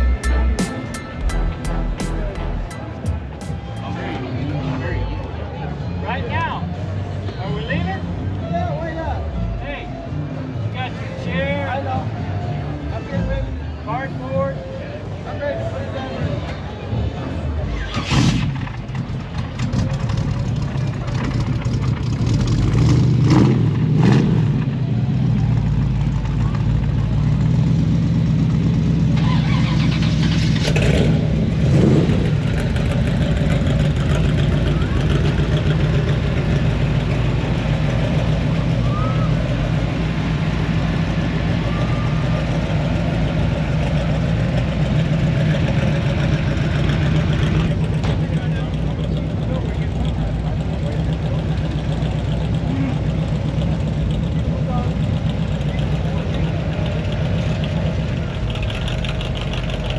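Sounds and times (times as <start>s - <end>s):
car engine idling: 0.0s - 4.3s, 18.7s - 22.8s, 32.2s - 59.9s.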